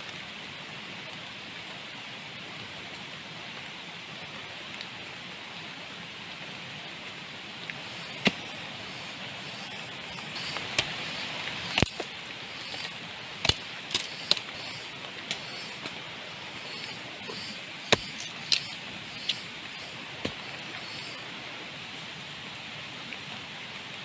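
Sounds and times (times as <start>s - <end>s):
steady rain: 0.0s - 24.0s
sharp knocks: 17.2s - 19.4s.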